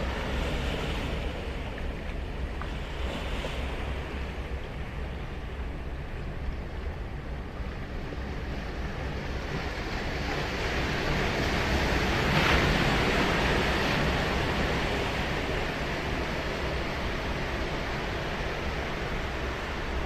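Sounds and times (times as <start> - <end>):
wave breaking on beach: 9.8 - 20.0.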